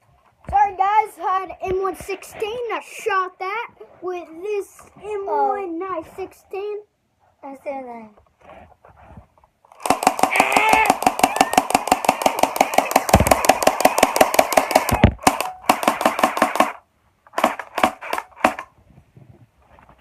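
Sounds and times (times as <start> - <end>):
toy gun firing clicks: 9.7 - 18.7.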